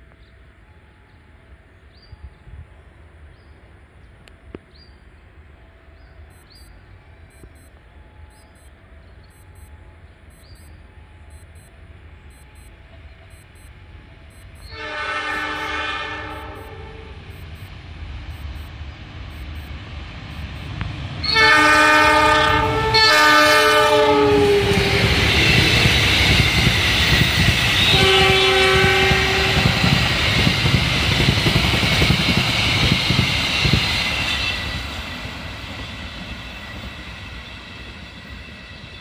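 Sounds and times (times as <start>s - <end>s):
diesel locomotive running: 0.0s - 39.0s
locomotive horn blasts: 14.6s - 17.3s, 21.2s - 25.6s, 27.8s - 29.8s
rush of train wheels on rails: 17.4s - 39.0s.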